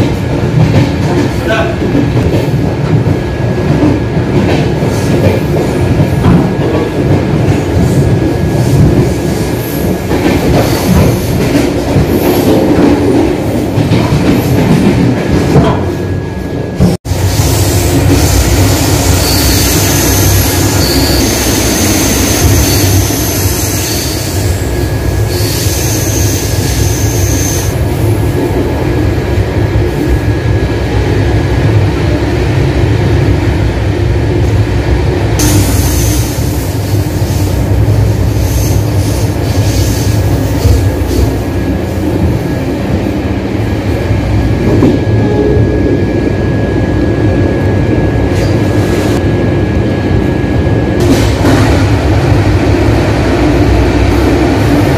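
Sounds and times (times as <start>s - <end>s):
wheels rumbling on rail: 0.0s - 54.9s
high wheel squeal: 18.9s - 24.6s.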